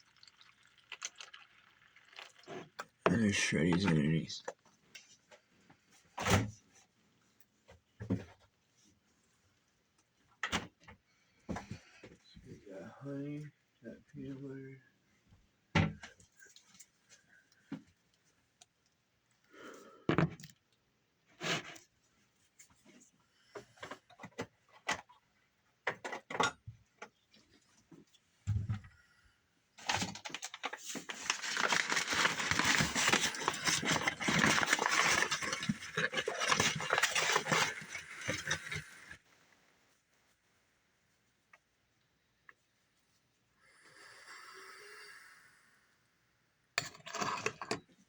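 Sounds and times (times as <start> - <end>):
cereal pouring into bowl: 0.0 - 4.4, 31.3 - 39.1.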